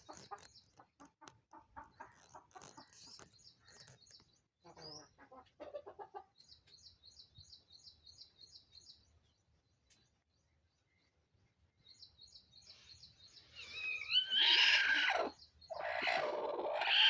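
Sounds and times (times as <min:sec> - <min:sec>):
hen clucking: 0:00.0 - 0:04.0, 0:04.6 - 0:06.4.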